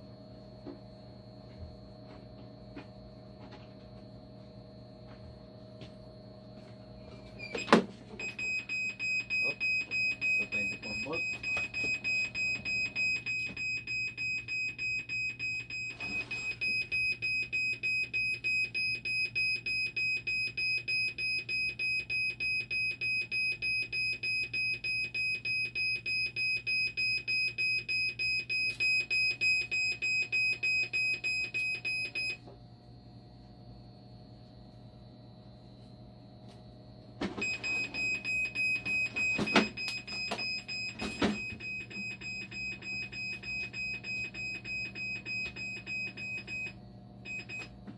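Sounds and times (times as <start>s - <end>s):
machine alarm beeping: 6.6s - 32.4s, 37.2s - 47.8s.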